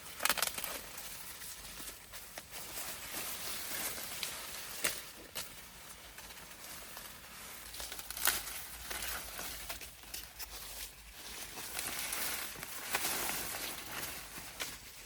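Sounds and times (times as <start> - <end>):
plant stalks snapping: 0.0 - 10.5
plant leaves rustling and crinkling: 0.0 - 15.0.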